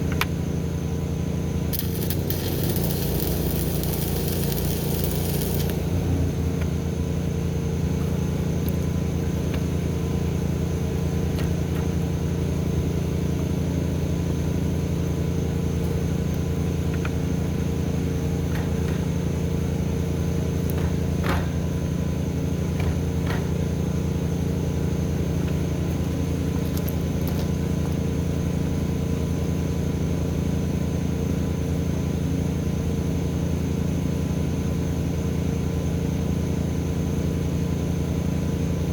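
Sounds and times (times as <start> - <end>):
low machine hum: 0.0 - 31.6.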